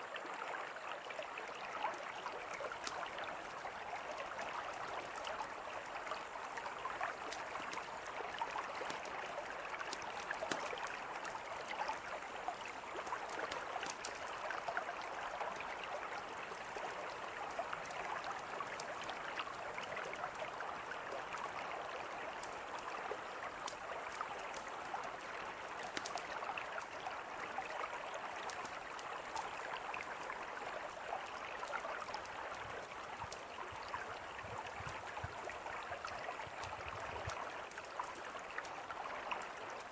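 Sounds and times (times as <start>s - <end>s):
river flowing: 0.0s - 39.9s
campfire crackling and popping: 6.6s - 11.8s, 12.6s - 15.0s, 22.3s - 26.9s.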